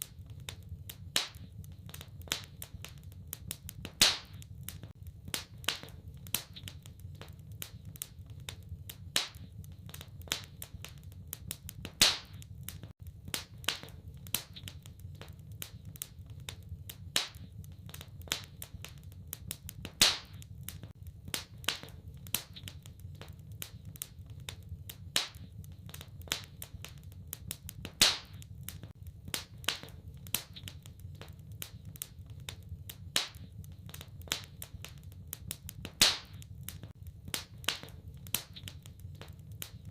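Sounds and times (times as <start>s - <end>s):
wood fire crackling: 0.0s - 39.9s
loud fire pop: 3.9s - 4.4s, 11.9s - 12.4s, 19.9s - 20.4s, 27.9s - 28.4s, 35.9s - 38.6s.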